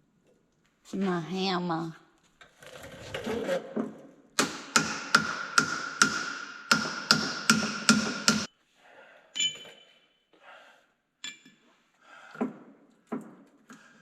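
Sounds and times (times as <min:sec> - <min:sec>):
hammer striking metal: 0:04.4 - 0:08.5.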